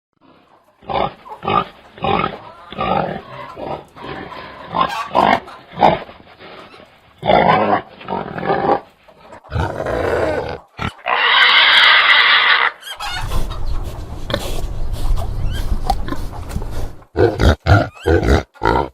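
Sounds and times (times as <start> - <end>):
pigs grunting: 0.2 - 18.9
pig squealing: 0.8 - 8.8, 9.4 - 16.3, 17.2 - 18.9.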